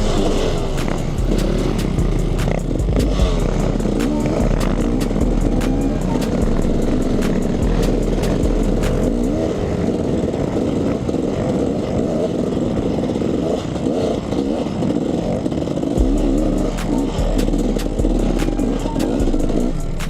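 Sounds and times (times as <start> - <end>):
two-stroke motorcycle engine revving: 0.0 - 20.0.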